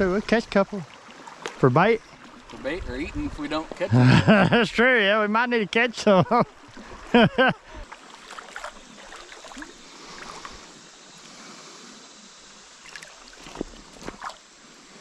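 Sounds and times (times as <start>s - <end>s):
creek water moving around canoe: 0.0s - 15.0s
small splashes: 0.5s - 2.8s, 6.4s - 10.8s, 12.8s - 14.6s.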